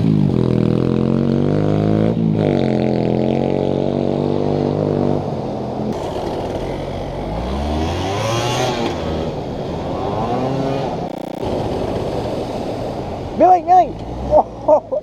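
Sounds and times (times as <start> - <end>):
rough gritty background noise: 5.9 - 14.7
small motorbike engine revving: 6.0 - 9.0.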